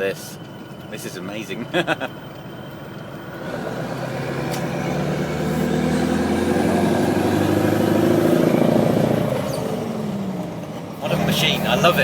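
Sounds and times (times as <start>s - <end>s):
truck diesel engine accelerating: 0.0s - 12.0s.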